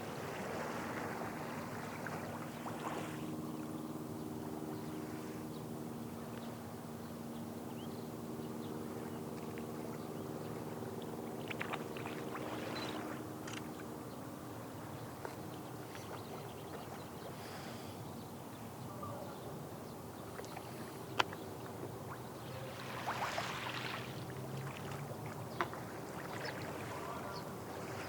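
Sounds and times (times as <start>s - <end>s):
engine drone: 1.2s - 14.9s.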